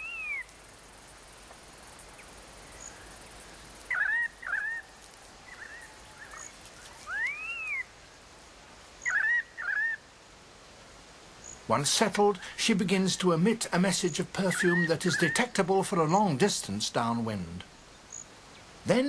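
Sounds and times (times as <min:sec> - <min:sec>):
bird calls: 0:00.0 - 0:00.6, 0:02.1 - 0:07.9, 0:09.0 - 0:10.1, 0:13.9 - 0:16.0
faint outdoor background: 0:00.0 - 0:19.0.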